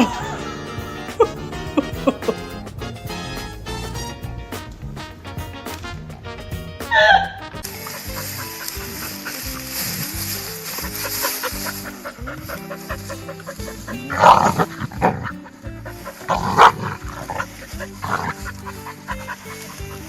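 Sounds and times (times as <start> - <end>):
background music: 0.0 - 20.0
dog barking: 6.9 - 20.0.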